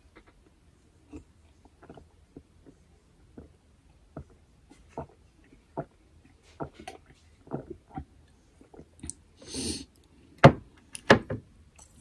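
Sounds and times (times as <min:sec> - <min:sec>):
chewing and biting food: 0:00.0 - 0:09.2.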